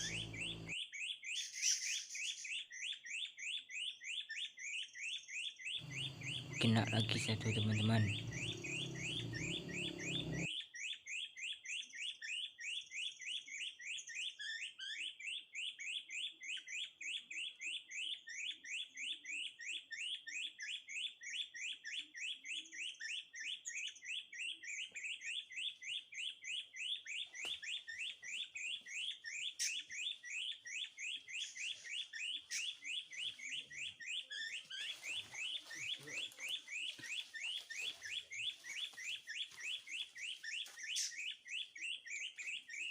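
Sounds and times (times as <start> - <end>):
bird chirping: 0.0 - 3.3, 4.7 - 10.5, 20.9 - 42.9.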